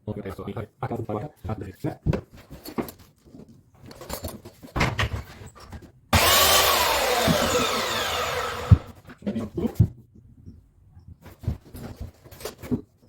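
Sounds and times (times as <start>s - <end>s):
power saw cutting: 6.2s - 8.9s.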